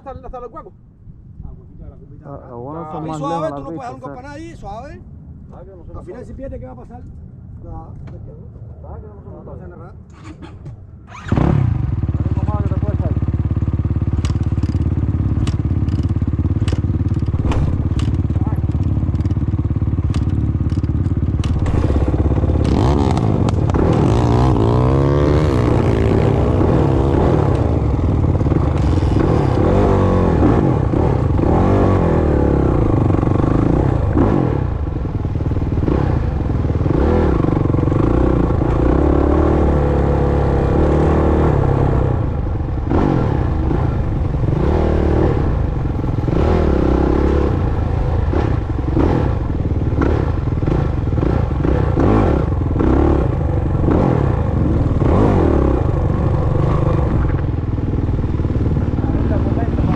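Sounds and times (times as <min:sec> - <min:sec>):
motocross engines revving: 0:10.1 - 0:59.9
rattling and clatter: 0:14.1 - 0:24.4.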